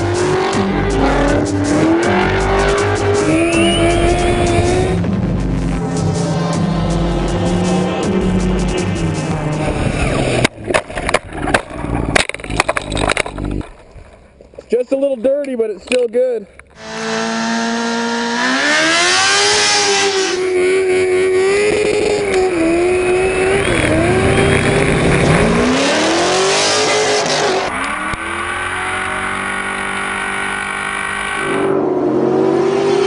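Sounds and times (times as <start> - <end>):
car engine revving hard: 0.0 - 10.4, 16.8 - 33.0
tyre squeal: 3.3 - 4.5.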